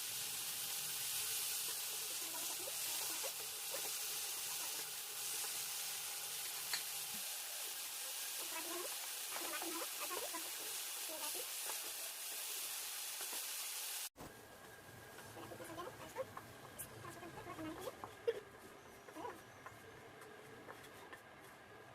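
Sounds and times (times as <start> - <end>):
cheese frying in hot oil: 0.0 - 18.4
stirring in a pan: 0.6 - 13.5.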